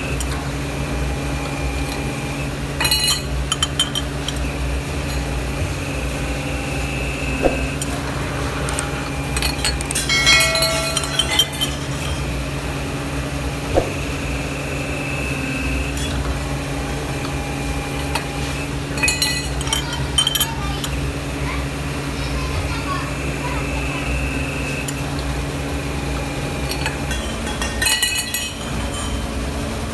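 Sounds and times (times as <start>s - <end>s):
workshop machinery hum: 0.0s - 29.9s
metal parts clinking: 8.1s - 12.4s.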